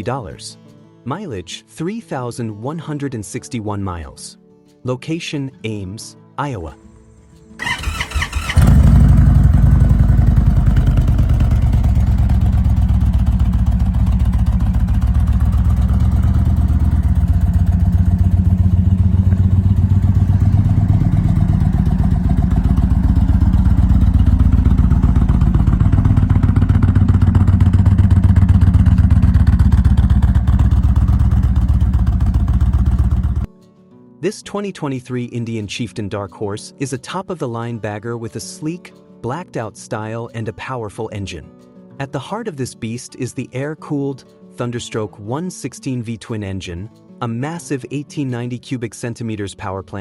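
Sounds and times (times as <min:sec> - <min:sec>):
motorcycle engine starting: 0:07.0 - 0:33.5
motorcycle engine pulsing rumble: 0:07.6 - 0:33.5.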